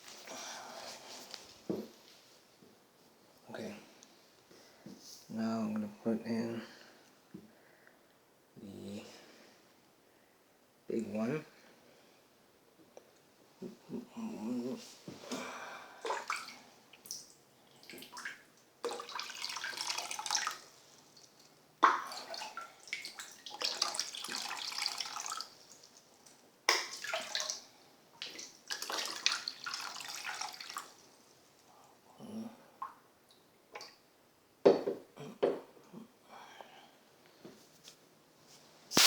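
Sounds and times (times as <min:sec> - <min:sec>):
water splashing in bathtub: 0:15.3 - 0:31.1.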